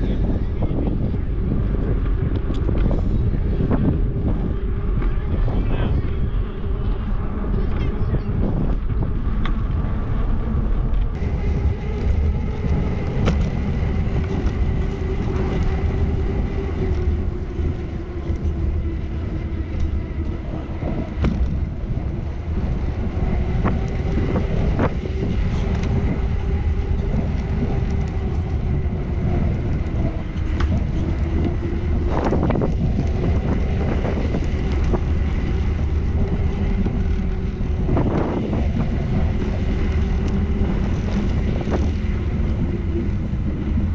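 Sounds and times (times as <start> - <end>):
bicycle rolling rumble: 0.0 - 43.9
wind buffeting microphone: 0.0 - 43.9
wavering hum: 0.6 - 43.9.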